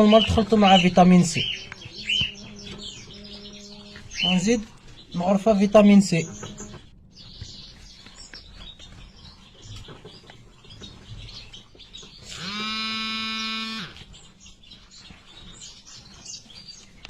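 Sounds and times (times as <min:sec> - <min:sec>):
small birds chirping: 0:00.0 - 0:17.0
loud steady tone: 0:12.3 - 0:14.0.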